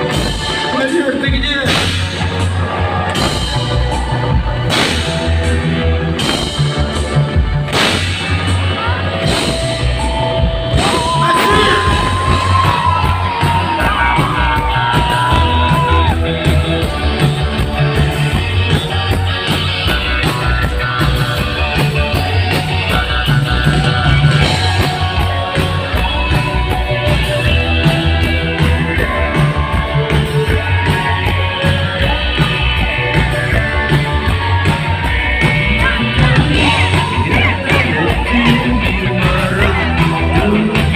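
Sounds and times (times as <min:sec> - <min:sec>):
drum and bass beat: 0:00.0 - 0:40.9
electric guitars: 0:00.0 - 0:40.9
male lead vocal: 0:10.7 - 0:16.6, 0:18.6 - 0:40.9.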